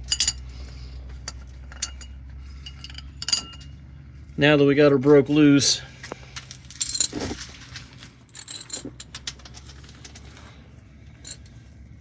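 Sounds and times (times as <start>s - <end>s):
metallic clinks of hand tools: 0.0s - 0.6s, 1.3s - 3.7s.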